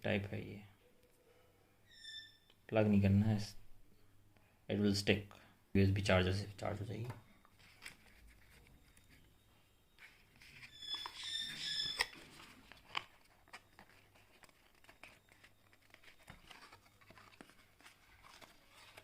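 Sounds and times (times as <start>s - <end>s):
plastic packaging squeak: 1.9s - 2.5s, 10.0s - 19.0s.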